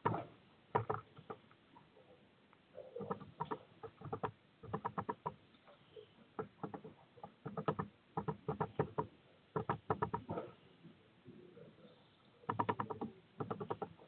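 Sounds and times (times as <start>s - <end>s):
bird tapping on feeder: 0.0s - 1.4s, 3.0s - 5.4s, 6.4s - 10.4s, 12.5s - 14.0s.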